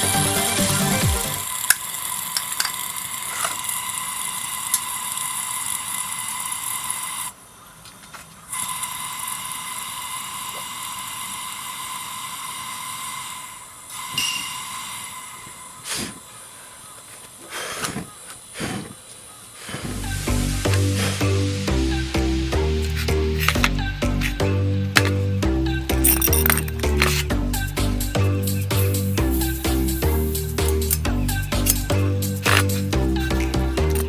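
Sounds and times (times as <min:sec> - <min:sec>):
steady hiss with whistle tone: 0:03.8 - 0:20.4, 0:28.5 - 0:30.8.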